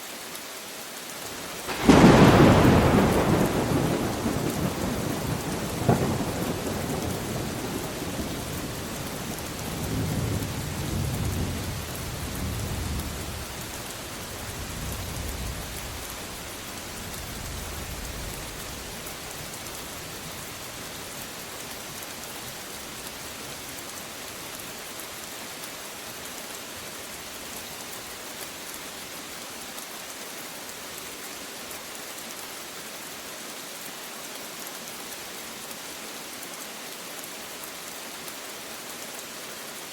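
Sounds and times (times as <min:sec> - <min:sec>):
rain hissing: 0:00.0 - 0:39.9
rolling thunder rumble: 0:01.7 - 0:16.4.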